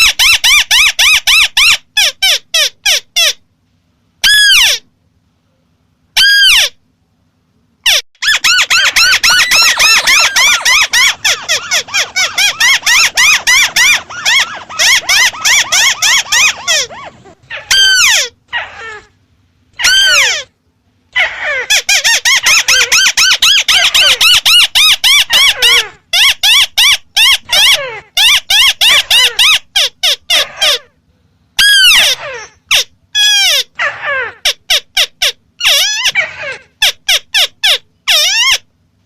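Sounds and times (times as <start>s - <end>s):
crake chattering call: 8.2s - 18.4s.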